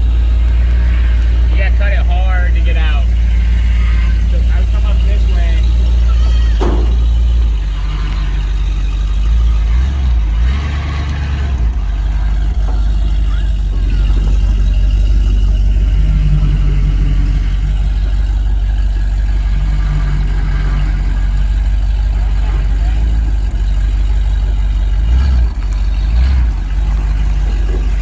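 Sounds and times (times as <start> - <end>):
truck engine rumbling: 0.0 - 28.0.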